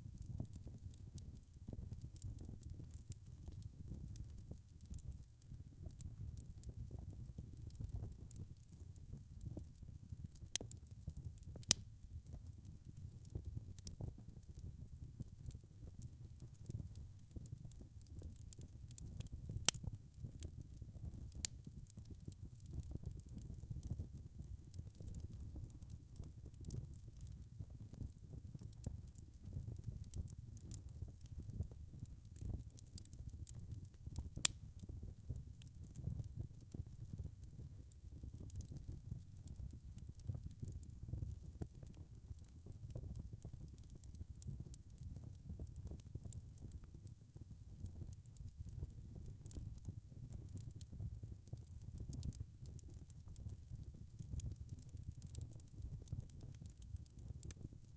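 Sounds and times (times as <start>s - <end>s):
wood fire crackling: 0.0s - 57.9s
fire popping: 5.9s - 11.9s, 16.6s - 27.4s, 28.0s - 46.9s, 47.9s - 57.7s.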